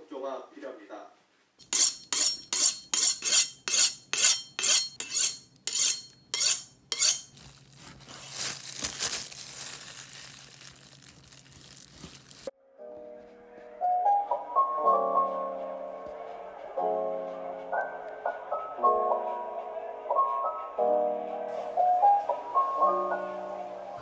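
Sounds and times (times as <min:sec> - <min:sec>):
utensil strokes: 0:01.6 - 0:12.5.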